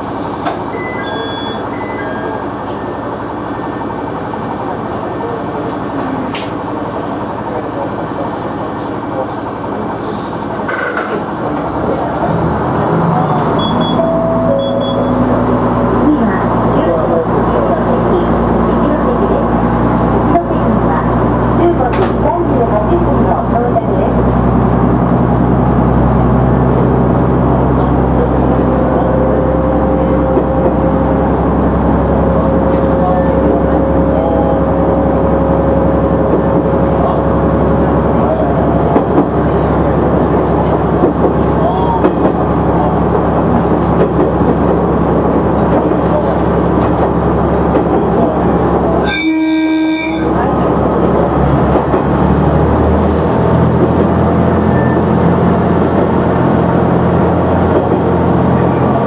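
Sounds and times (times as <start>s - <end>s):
diesel railcar engine revving: 0.0s - 59.0s
double electronic beep: 0.7s - 2.8s, 13.5s - 15.4s.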